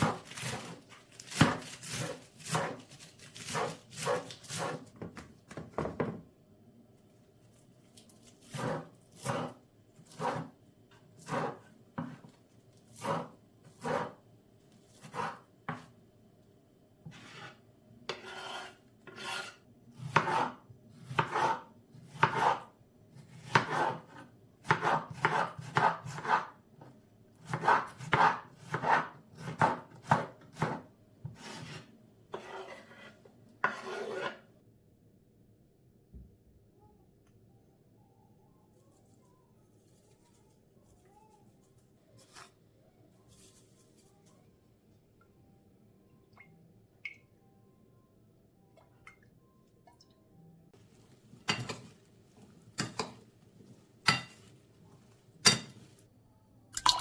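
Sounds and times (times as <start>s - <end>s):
knife chopping on cutting board: 0.0s - 2.8s, 3.4s - 6.2s, 8.4s - 10.5s, 11.2s - 12.4s, 13.0s - 14.2s, 15.0s - 15.9s, 18.1s - 22.6s, 23.3s - 26.5s, 27.4s - 31.8s.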